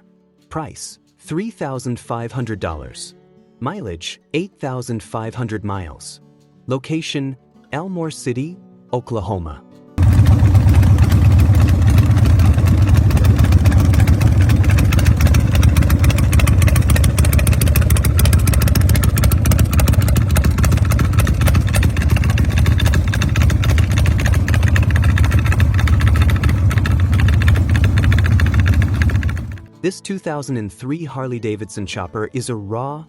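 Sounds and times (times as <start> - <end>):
motorcycle engine deep idle: 10.0 - 29.7.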